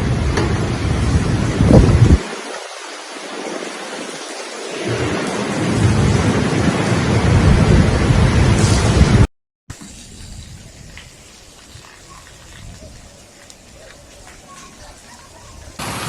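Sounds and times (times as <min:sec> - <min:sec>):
heavy rain hissing: 0:00.0 - 0:09.3, 0:15.8 - 0:16.0
thunder rumbling: 0:04.7 - 0:09.3, 0:15.8 - 0:16.0.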